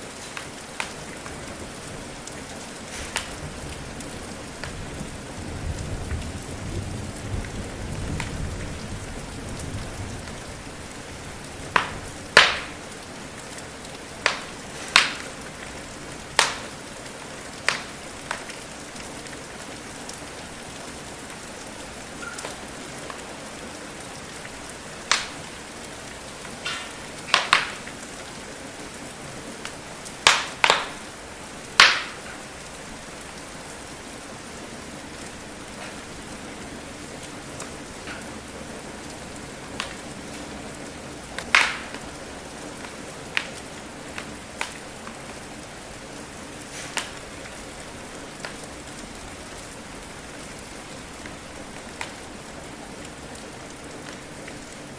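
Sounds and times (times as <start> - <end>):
rain hiss: 0.0 - 54.9
wood fire popping: 0.2 - 1.4, 2.7 - 4.9, 11.3 - 13.1, 13.7 - 19.4, 22.2 - 23.3, 24.7 - 25.8, 26.4 - 28.0, 29.6 - 32.5, 37.6 - 38.3, 39.8 - 40.5, 41.4 - 45.4, 46.7 - 47.5, 51.2 - 52.3.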